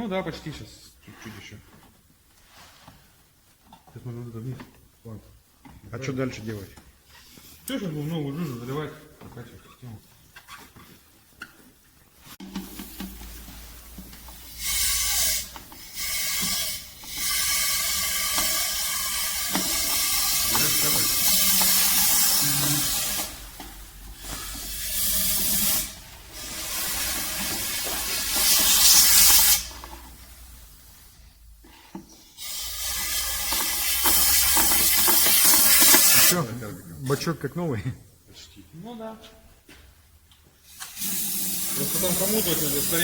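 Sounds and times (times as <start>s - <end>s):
aerosol spray hissing: 14.4s - 23.4s, 40.7s - 43.0s.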